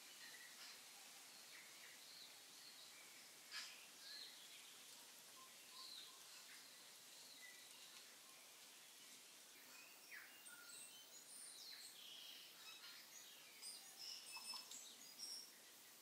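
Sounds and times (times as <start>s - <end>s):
quiet hiss: 0.0s - 16.0s
birds chirping and whistling: 9.6s - 16.0s.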